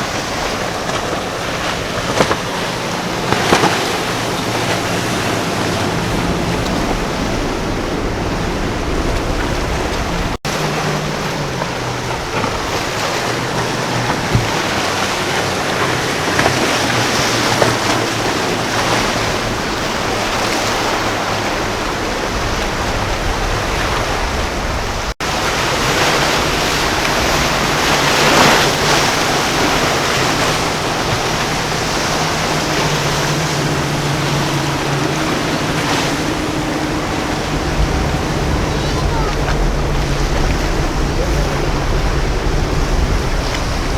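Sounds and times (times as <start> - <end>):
boat engines droning: 0.0 - 43.9
waves and surf: 0.0 - 43.9
wind on microphone: 0.0 - 43.9.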